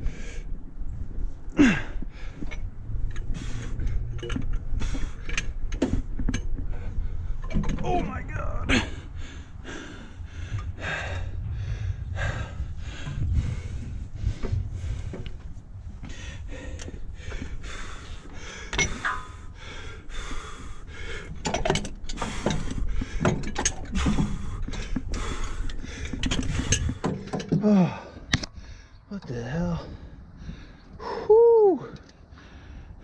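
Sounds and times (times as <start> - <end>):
man breathing hard and straining: 0.0 - 33.0.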